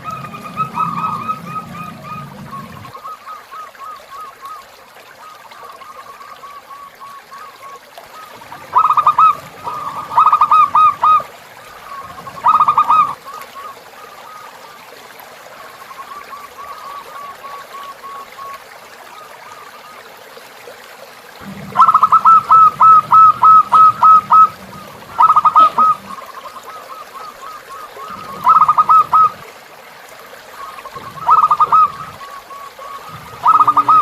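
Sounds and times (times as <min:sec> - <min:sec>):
dove cooing: 0:00.0 - 0:04.0, 0:08.2 - 0:14.5, 0:21.4 - 0:29.4, 0:30.5 - 0:34.0
running river water: 0:00.0 - 0:34.0.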